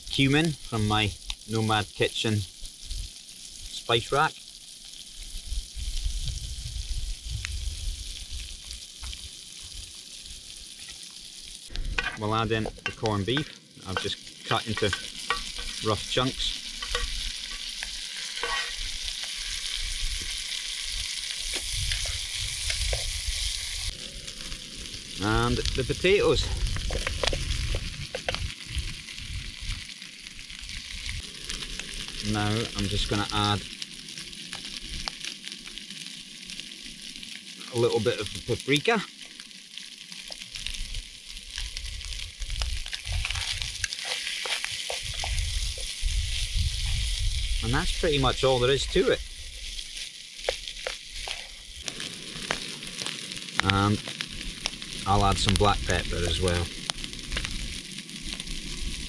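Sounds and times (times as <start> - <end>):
meat and onions sizzling in pan: 0.0 - 59.0
wooden spoon scraping a pan: 11.9 - 20.4, 21.3 - 23.8, 42.8 - 46.0, 49.6 - 51.6
low rumbles: 18.8 - 29.8.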